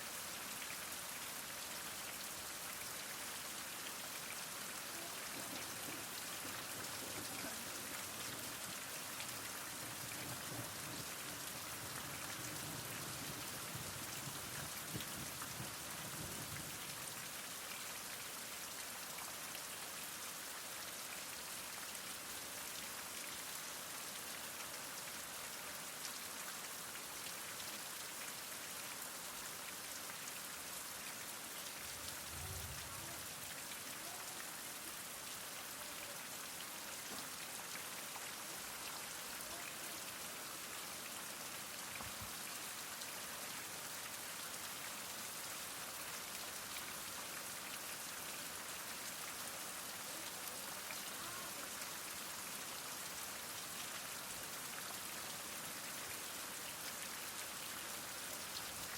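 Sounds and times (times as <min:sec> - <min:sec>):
heavy rain falling: 0:01.7 - 0:17.5, 0:30.4 - 0:55.0.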